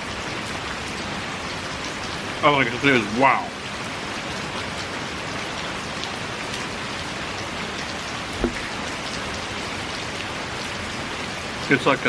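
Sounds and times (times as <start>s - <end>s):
heavy rain pouring: 0.0s - 12.0s
raindrops ticking: 5.6s - 12.0s
low bump: 8.4s - 8.8s.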